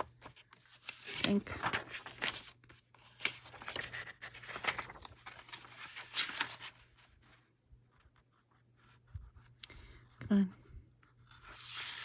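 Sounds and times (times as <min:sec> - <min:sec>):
paper and card rustling: 0:00.0 - 0:07.4, 0:11.3 - 0:12.0.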